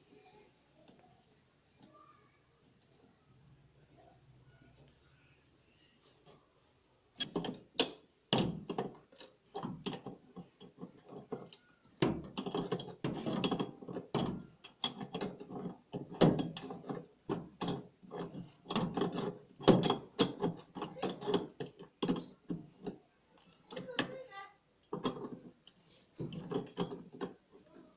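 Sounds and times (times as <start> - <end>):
metallic clicking and rattling tools: 8.6 - 23.0.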